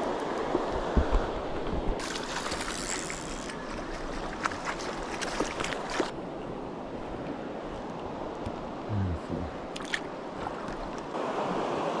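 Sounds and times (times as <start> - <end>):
river rushing: 0.0 - 12.0
small splashes and clicks: 1.9 - 6.2, 9.7 - 11.1.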